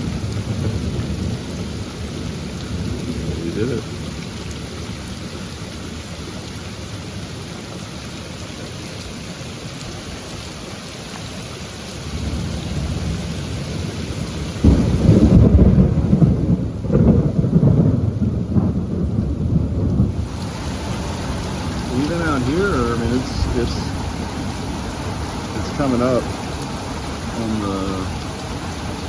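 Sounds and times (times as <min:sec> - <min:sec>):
thunder rumbling: 0:00.0 - 0:04.2, 0:12.1 - 0:29.0
heavy rain: 0:00.0 - 0:29.0.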